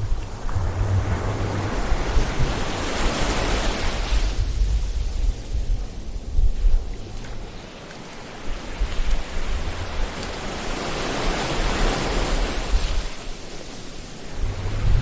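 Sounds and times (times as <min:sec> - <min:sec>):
ocean wave washing: 0:00.0 - 0:06.3, 0:07.4 - 0:15.0
low surf rumble: 0:00.0 - 0:07.5, 0:14.2 - 0:15.0.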